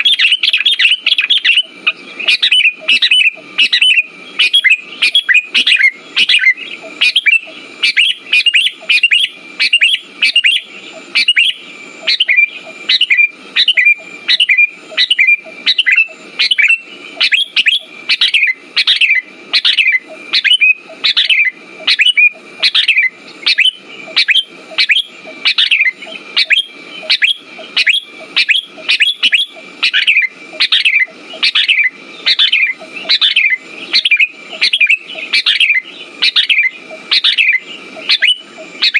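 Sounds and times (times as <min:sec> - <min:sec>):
bird chattering calls: 0:00.0 - 0:38.9
thin steady high tone: 0:00.0 - 0:38.9.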